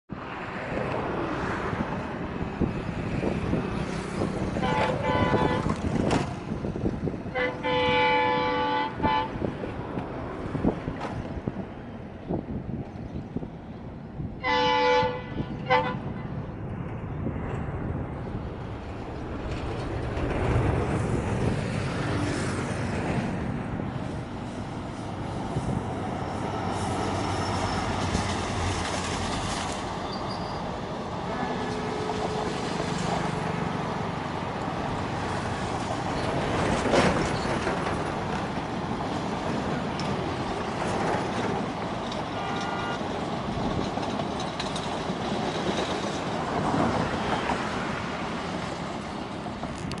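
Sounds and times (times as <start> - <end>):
train wheels running on rails: 16.6 - 50.0.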